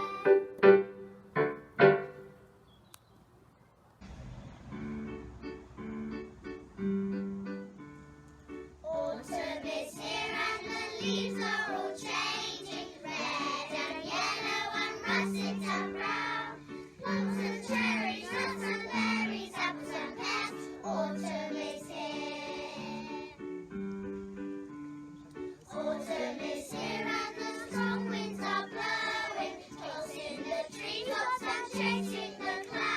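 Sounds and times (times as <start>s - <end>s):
children singing: 0.0s - 0.4s, 8.9s - 23.4s, 25.6s - 32.9s
backing music: 0.0s - 2.5s, 4.0s - 32.9s.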